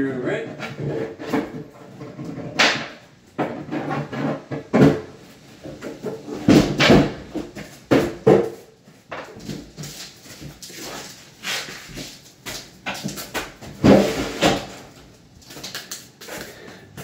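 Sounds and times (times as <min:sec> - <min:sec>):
knocks of wooden cabinets: 0:02.5 - 0:09.7.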